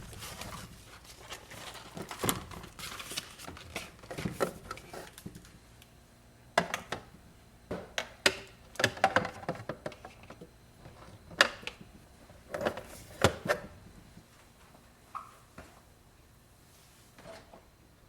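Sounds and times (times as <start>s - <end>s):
packet rustle: 0.0s - 4.2s
plastic containers clicking and knocking: 7.7s - 11.9s.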